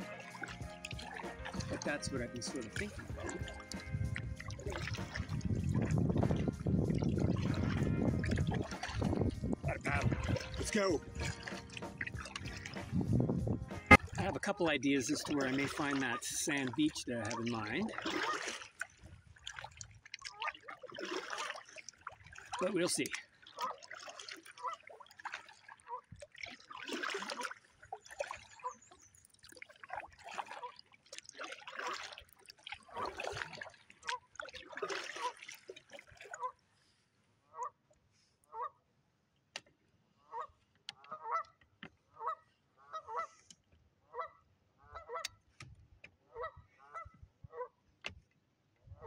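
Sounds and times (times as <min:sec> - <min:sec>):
water splashing: 0:00.0 - 0:36.6
geese honking: 0:42.2 - 0:43.4.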